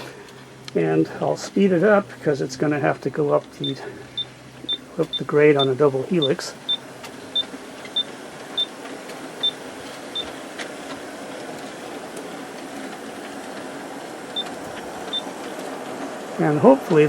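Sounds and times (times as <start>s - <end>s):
model train wheels and motors rumbling: 0.0s - 17.0s.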